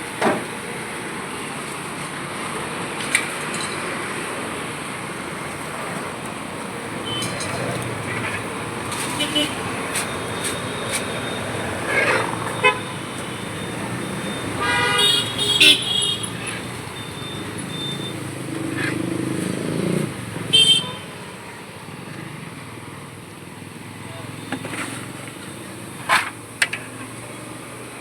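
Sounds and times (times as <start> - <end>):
traffic hum: 0.0 - 28.0
vehicle horns honking: 6.9 - 18.2, 20.5 - 21.2.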